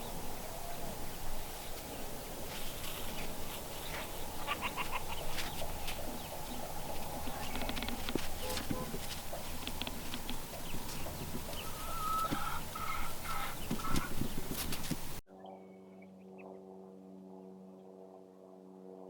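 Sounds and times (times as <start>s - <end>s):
chickens clucking: 0.0s - 15.2s.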